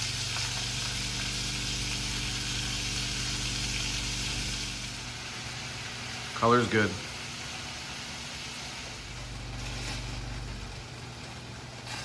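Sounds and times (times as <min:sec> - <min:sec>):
low hum: 0:00.0 - 0:06.1, 0:08.7 - 0:11.7
food sizzling in a pan: 0:00.0 - 0:12.0.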